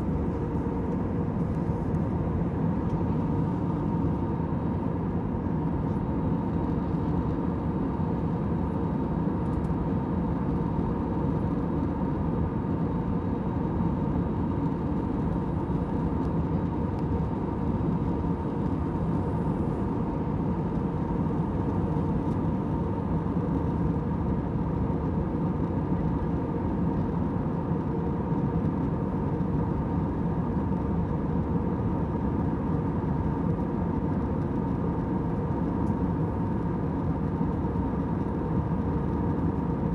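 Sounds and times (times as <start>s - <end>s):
airliner cabin engine rush: 0.0s - 39.9s.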